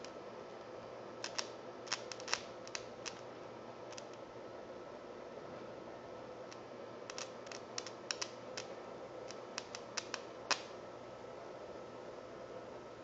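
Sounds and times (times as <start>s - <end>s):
wire crackling and clicking: 1.2s - 3.2s, 6.5s - 10.7s.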